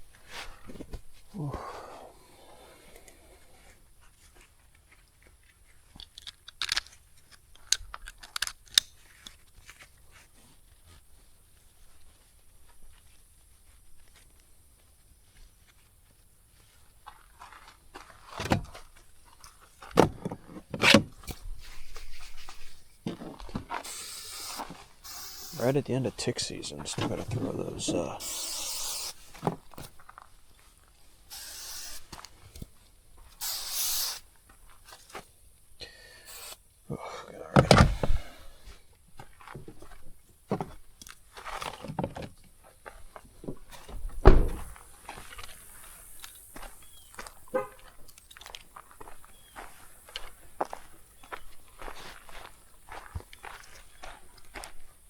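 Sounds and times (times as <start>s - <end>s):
short hiss: 23.8s - 25.8s, 28.1s - 29.4s, 31.3s - 32.6s, 33.3s - 34.3s, 36.2s - 36.6s
car door shutting: 37.6s - 38.3s, 44.2s - 44.8s
knocks and thuds with rustling: 43.4s - 44.8s.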